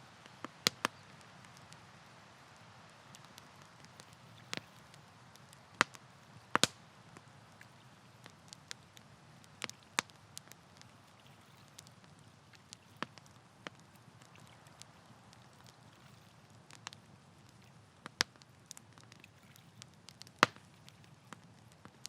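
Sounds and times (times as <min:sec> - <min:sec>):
campfire crackling: 0:00.0 - 0:22.0
low background hiss: 0:00.0 - 0:22.0.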